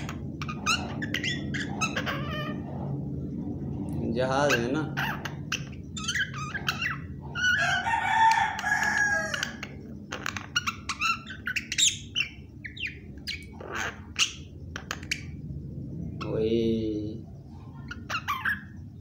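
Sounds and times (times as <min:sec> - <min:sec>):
myna bird whistling and chirping: 0:00.0 - 0:02.9, 0:04.4 - 0:15.4, 0:17.6 - 0:19.0.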